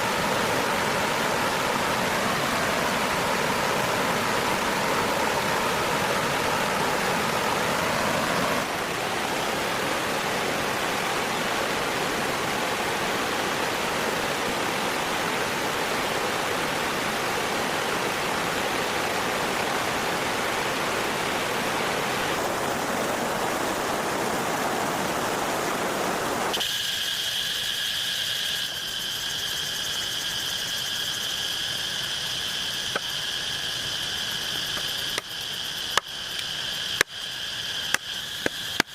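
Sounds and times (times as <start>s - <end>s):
flowing water: 0.0s - 27.9s, 30.5s - 38.9s
high-pitched insect drone: 26.5s - 38.9s.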